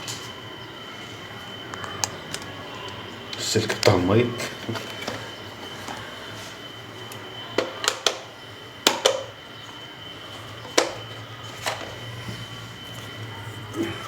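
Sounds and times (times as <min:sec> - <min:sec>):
low electrical hum: 0:00.0 - 0:14.0
fan parts clicking and knocking: 0:01.7 - 0:06.1, 0:07.1 - 0:09.8, 0:10.6 - 0:12.1.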